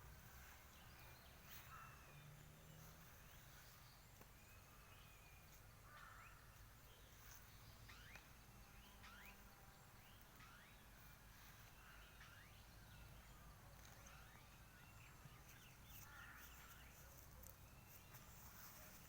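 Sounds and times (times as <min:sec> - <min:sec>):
low steady background noise: 0:00.0 - 0:19.0
faint bird chirps and whistles: 0:07.0 - 0:13.2.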